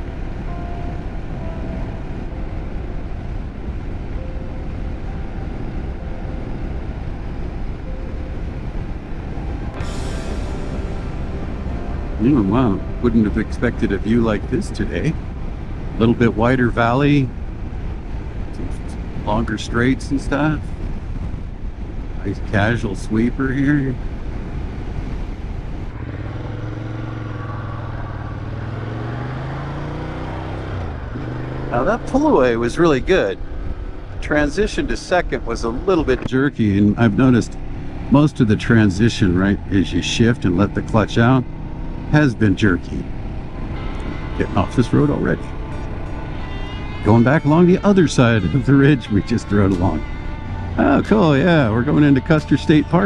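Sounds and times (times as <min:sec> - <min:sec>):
wind and road noise: 0:00.0 - 0:53.0
motorcycle engine running: 0:24.0 - 0:34.2, 0:37.0 - 0:53.0.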